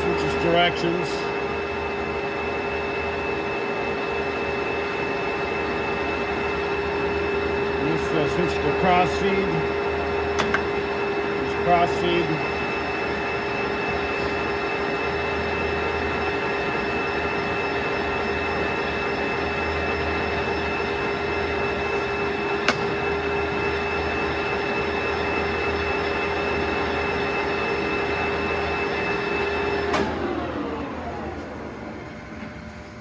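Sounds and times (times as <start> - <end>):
lathe gear whine: 0.0 - 33.0
lathe shutoff clunk: 10.3 - 10.9.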